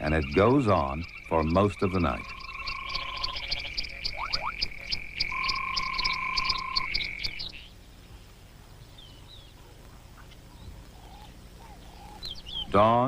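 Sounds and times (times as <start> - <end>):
chorus of frogs calling: 0.0 - 7.8, 8.8 - 13.0
faint chirps: 0.0 - 13.0.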